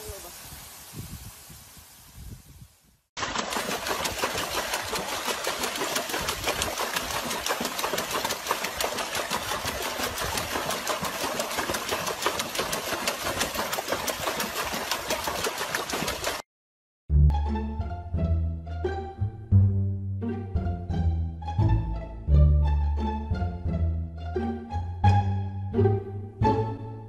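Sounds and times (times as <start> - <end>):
dog splashing water in tub: 3.2 - 16.4.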